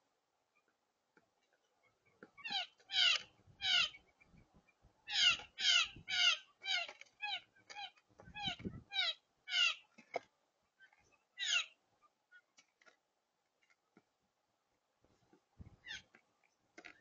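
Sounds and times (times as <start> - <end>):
bird calling loud downslurred calls: 2.4 - 4.0, 5.1 - 9.9, 10.9 - 11.8.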